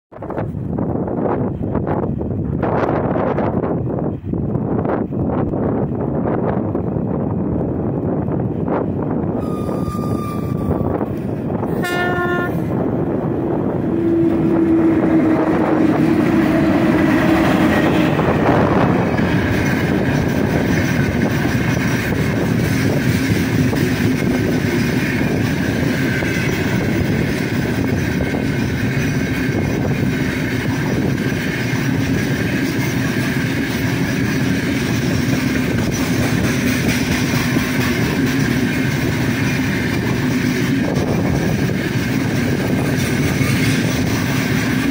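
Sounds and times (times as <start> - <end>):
freight train wagons rolling past: 0.2 - 44.9
locomotive whistle: 9.4 - 12.7.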